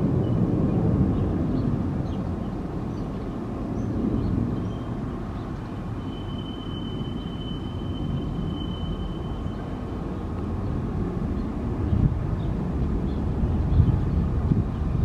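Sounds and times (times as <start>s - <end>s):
subway train rumbling: 0.0s - 15.0s
thin high whine: 5.9s - 10.2s.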